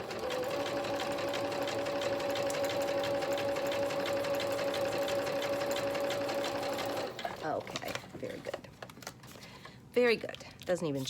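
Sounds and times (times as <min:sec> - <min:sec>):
sewing machine stitching: 0:00.0 - 0:07.6.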